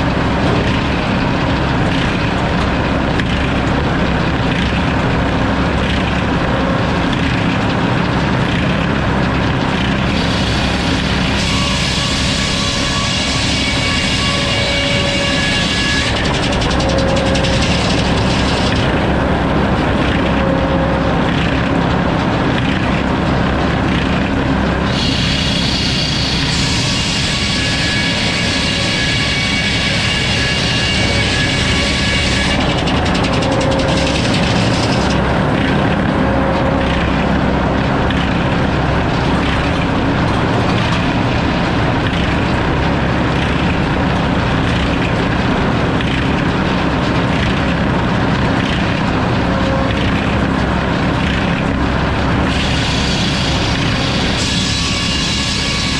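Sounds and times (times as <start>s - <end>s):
sawmill mechanical din: 0.0s - 55.9s
high-pitched whine: 9.2s - 22.2s, 24.1s - 43.2s.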